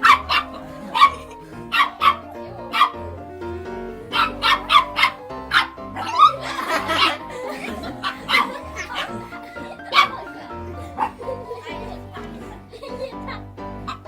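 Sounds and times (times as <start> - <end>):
dog barking: 0.0 - 3.0, 4.1 - 12.4
background music: 0.0 - 14.0.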